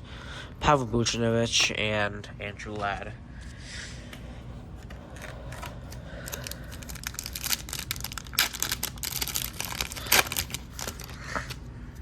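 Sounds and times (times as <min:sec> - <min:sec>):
foil wrapper crinkling and tearing: 0:05.2 - 0:11.6.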